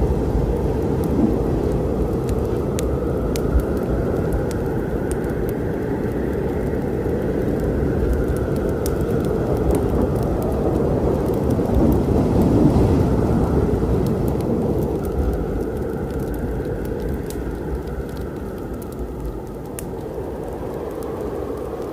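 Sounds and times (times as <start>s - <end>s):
rolling thunder: 0.0s - 4.6s, 9.5s - 17.4s
steady rain: 0.0s - 21.9s
wood fire crackling: 0.0s - 21.9s.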